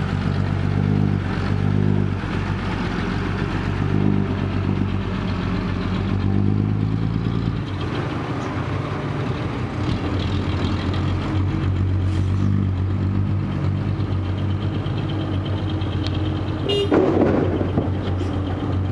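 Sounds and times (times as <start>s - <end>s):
heavy diesel engine running: 0.0s - 18.9s.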